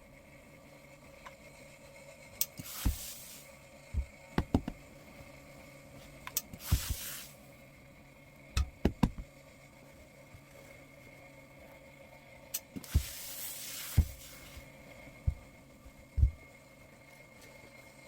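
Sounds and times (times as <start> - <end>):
short hiss: 2.6 - 3.4, 6.6 - 7.4
objects knocking on a work table: 4.0 - 4.8.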